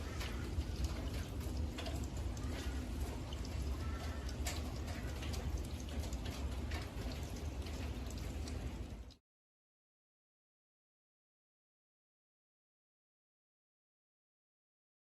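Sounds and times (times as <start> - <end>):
rain falling and dripping: 0.0 - 9.2
bird calling: 3.8 - 4.3.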